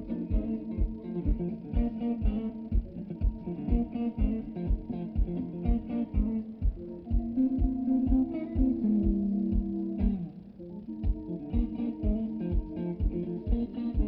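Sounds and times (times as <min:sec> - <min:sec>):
blues guitar music with bass: 0:00.0 - 0:14.0.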